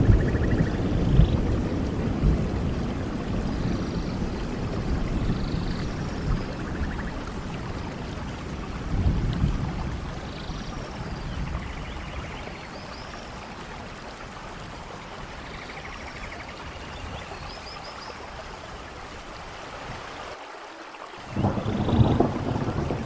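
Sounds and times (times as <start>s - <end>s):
low thunder rumble: 0.0s - 12.5s, 21.2s - 23.0s
heavy rainfall: 0.0s - 23.0s.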